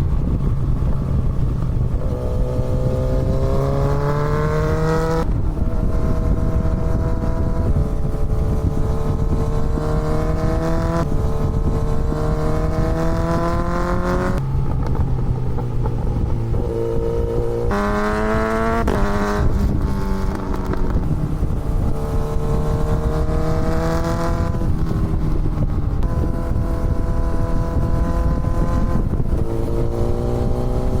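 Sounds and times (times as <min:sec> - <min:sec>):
motorcycle engine accelerating: 0:00.0 - 0:31.0
wind on microphone: 0:00.0 - 0:31.0.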